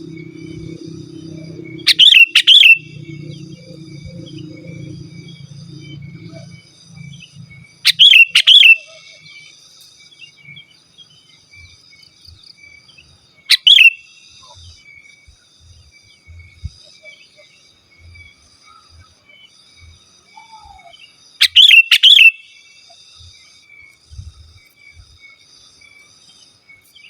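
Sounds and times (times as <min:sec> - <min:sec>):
bird whistled calls: 0:00.0 - 0:09.5, 0:13.5 - 0:14.6, 0:20.4 - 0:22.4
faint high chirping: 0:00.0 - 0:27.0.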